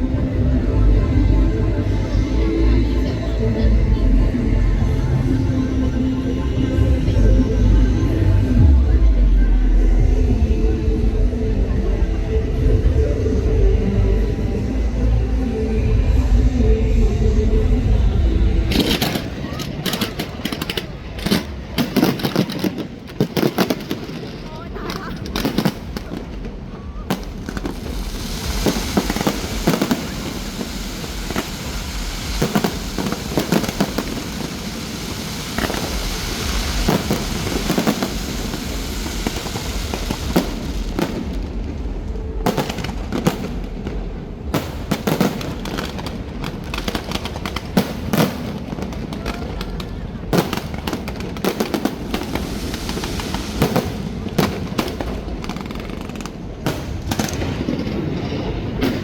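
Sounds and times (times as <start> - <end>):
crowd voices: 0.0 - 59.0
fireworks bangs and crackles: 17.0 - 59.0.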